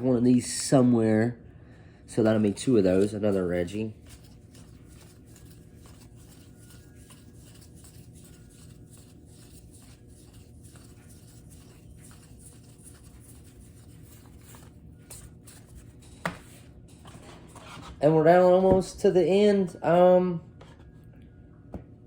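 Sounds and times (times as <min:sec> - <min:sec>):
low steady hum: 0:00.0 - 0:22.0
cards being flipped through: 0:02.6 - 0:18.0.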